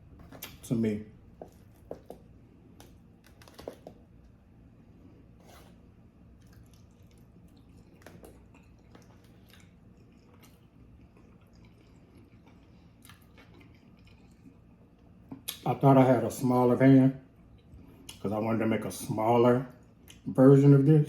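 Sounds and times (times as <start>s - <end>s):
close-up chewing: 6.3s - 15.2s.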